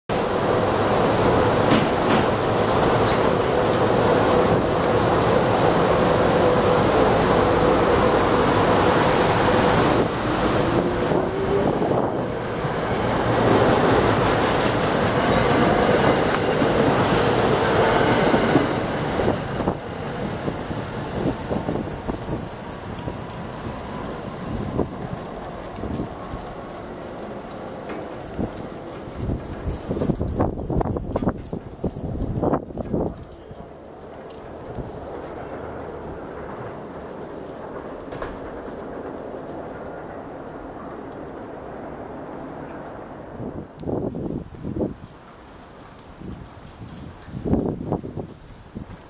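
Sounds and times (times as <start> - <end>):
railcar hum: 0.1 - 49.0
wheels clattering on rail: 0.1 - 49.0.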